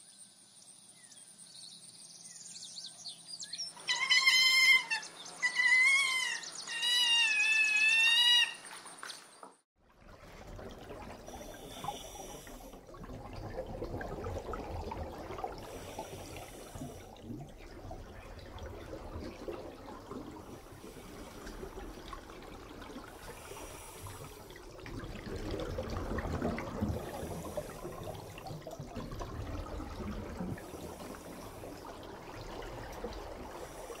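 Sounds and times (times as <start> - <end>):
sea otter squealing: 3.8 - 8.6
muffled underwater water rush: 9.8 - 34.0.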